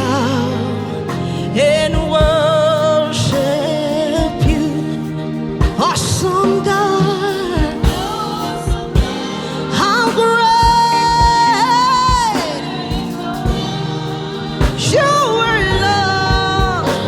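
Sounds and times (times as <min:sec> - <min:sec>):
person singing gospel: 0:00.0 - 0:17.0
backing band with drums: 0:02.0 - 0:02.6, 0:05.6 - 0:17.0.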